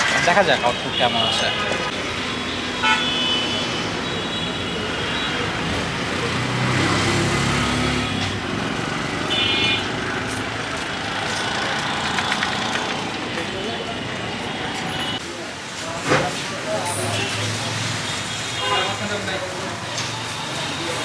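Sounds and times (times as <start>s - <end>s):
road traffic noise: 0.0s - 21.0s
vehicle rumbling past: 5.6s - 13.4s.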